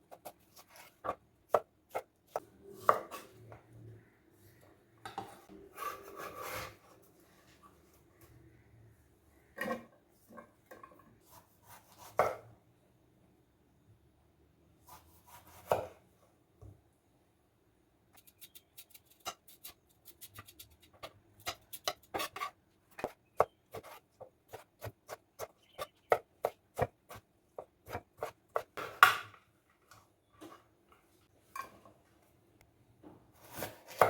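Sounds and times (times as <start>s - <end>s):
knife chopping vegetables on board: 14.9s - 16.0s, 18.2s - 29.2s.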